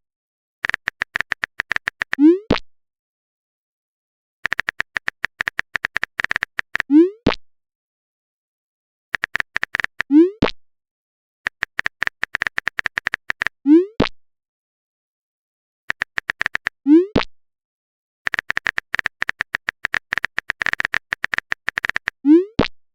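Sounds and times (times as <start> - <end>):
quick typing clicks: 0.6 - 2.2, 4.4 - 6.9, 9.2 - 10.1, 11.5 - 13.5, 15.9 - 16.8, 18.3 - 22.2.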